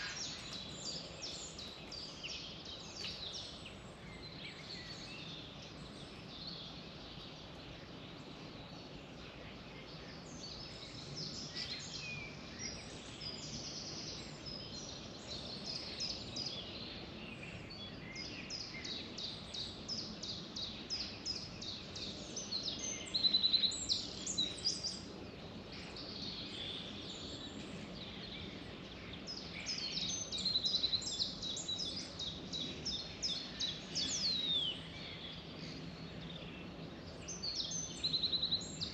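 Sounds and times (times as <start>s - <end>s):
outdoor background hiss: 0.0s - 38.9s
songbirds chirping and trilling: 0.0s - 38.9s.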